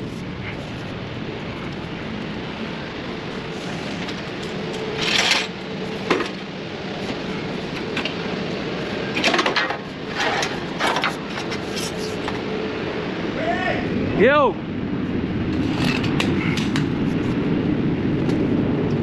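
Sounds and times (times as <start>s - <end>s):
steady mechanical hum: 0.0s - 19.0s
hand tools clanking and scraping: 3.5s - 6.4s, 9.1s - 12.4s.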